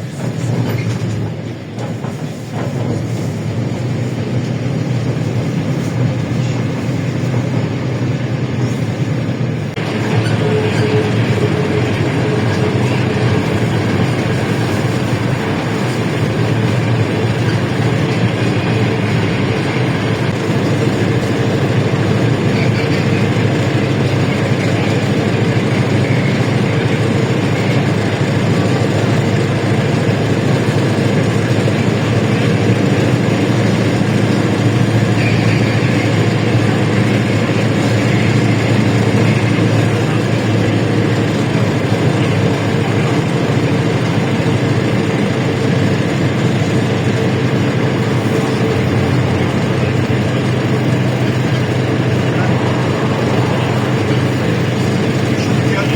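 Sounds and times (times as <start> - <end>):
bus engine running: 0.0 - 55.9
road and body noise: 0.0 - 55.9.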